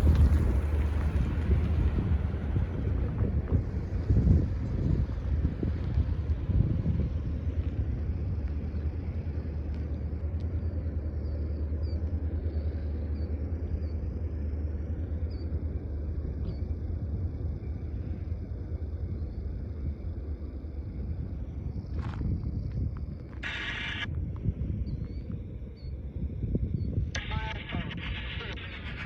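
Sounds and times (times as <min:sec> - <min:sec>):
freight train rumbling past: 0:00.0 - 0:09.6.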